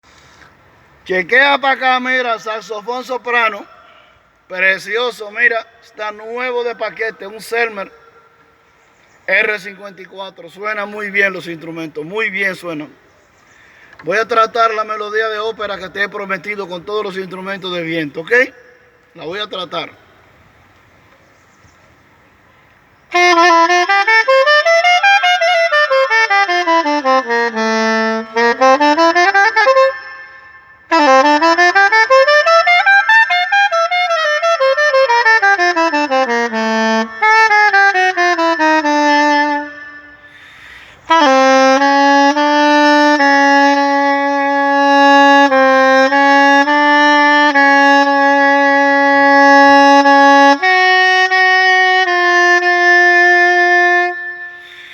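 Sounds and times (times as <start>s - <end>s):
soprano saxophone playing: 23.1s - 54.9s.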